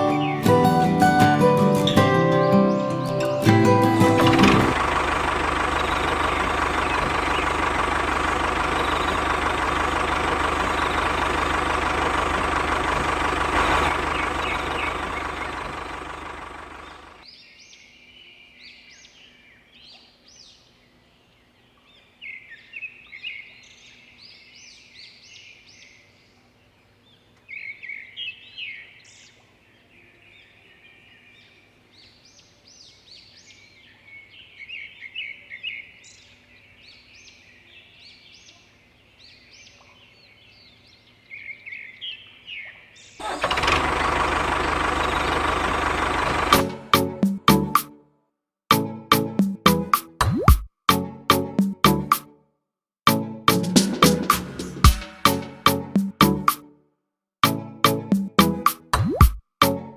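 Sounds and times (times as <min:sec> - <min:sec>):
small birds chirping: 0:00.0 - 0:43.3.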